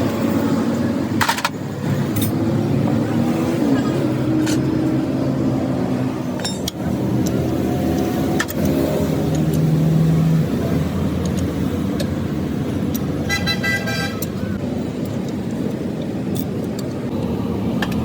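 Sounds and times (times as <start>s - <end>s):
metallic clicks and knocks: 6.4s - 9.7s.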